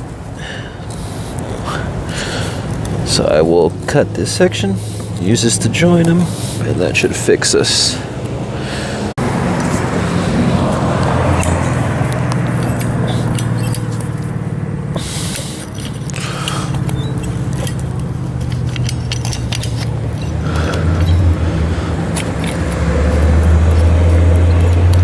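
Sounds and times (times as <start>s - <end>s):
low engine hum: 0.0s - 25.0s
light clicks and scrapes: 15.0s - 21.5s.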